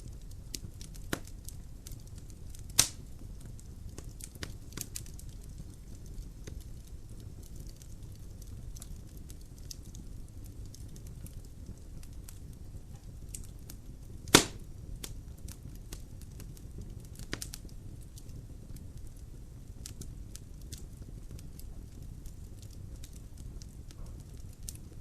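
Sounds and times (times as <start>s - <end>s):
logs crackling in fireplace: 0.0s - 25.0s
low rush of fire: 0.0s - 25.0s
loud sharp pop: 14.3s - 14.6s.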